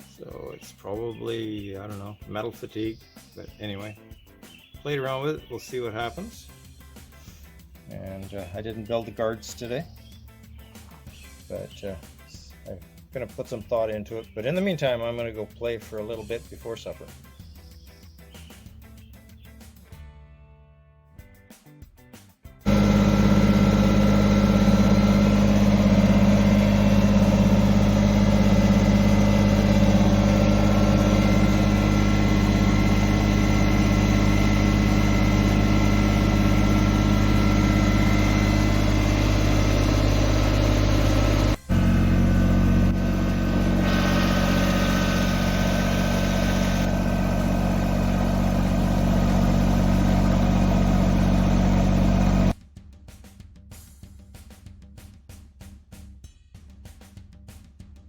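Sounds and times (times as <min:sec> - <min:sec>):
tractor diesel engine running: 0:22.7 - 0:52.6.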